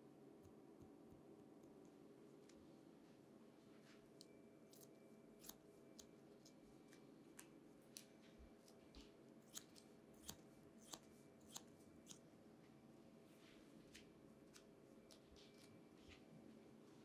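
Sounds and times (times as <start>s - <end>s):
low room hum: 0.0s - 17.0s
scissors snipping hair: 4.7s - 8.8s, 9.4s - 12.2s.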